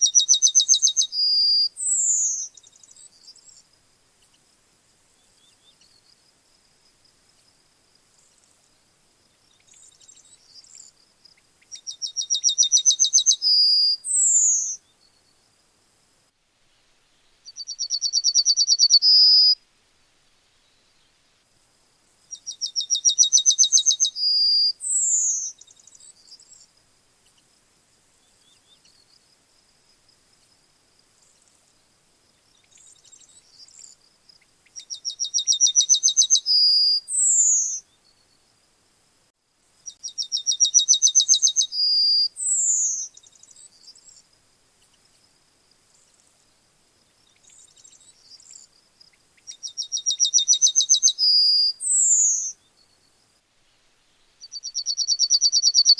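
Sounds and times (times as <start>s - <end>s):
bird song phrases: 0.0s - 4.4s, 5.1s - 6.2s, 9.3s - 15.4s, 17.2s - 19.6s, 22.3s - 26.7s, 28.2s - 29.2s, 32.3s - 38.5s, 39.8s - 44.2s, 47.0s - 53.2s, 54.2s - 55.9s
faint soft chirps: 5.1s - 15.5s, 17.2s - 19.6s, 28.2s - 38.5s, 39.8s - 53.3s.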